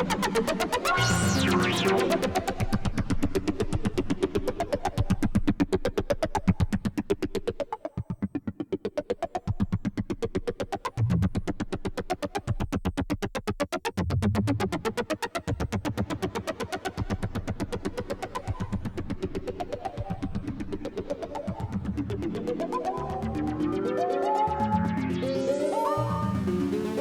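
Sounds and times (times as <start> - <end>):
synthesizer bass notes: 0.0 - 3.8, 17.0 - 27.0
synthesizer metallic notes: 0.9 - 2.6.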